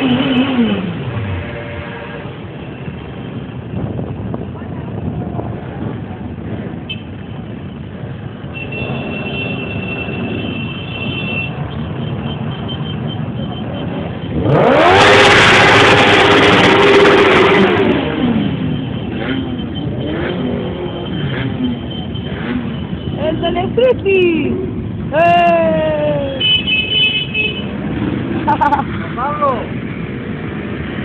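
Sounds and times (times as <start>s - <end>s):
wind noise on microphone: 3.4s - 7.1s
motorcycle engine revving: 14.3s - 23.0s.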